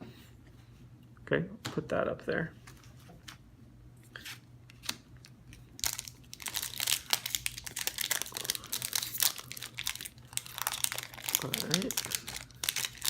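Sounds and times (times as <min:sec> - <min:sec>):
foil wrapper crinkling: 0:04.8 - 0:13.0.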